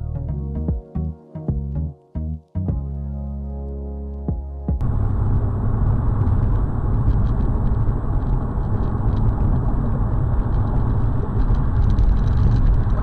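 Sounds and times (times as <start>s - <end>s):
car engine: 4.8s - 13.0s
road noise: 4.8s - 13.0s.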